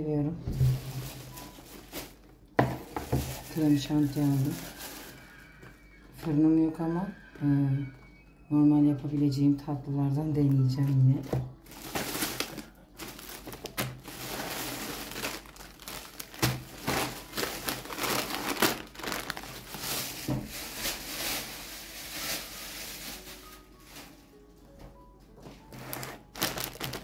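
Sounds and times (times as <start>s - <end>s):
plastic packaging crinkling: 0.6s - 6.3s, 11.2s - 24.2s, 25.7s - 27.0s.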